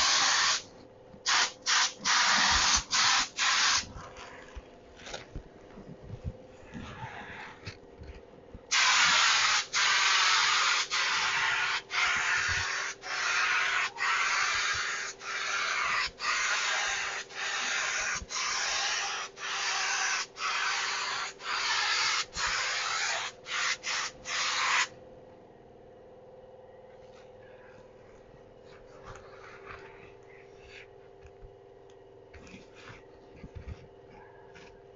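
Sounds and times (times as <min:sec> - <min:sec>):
paint spray gun hissing: 0:00.0 - 0:00.7, 0:01.3 - 0:03.9, 0:08.7 - 0:24.9.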